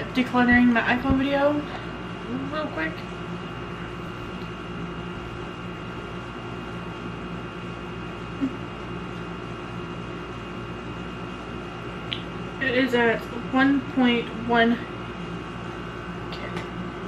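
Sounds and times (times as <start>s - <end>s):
machine-like room hum: 0.0s - 17.0s.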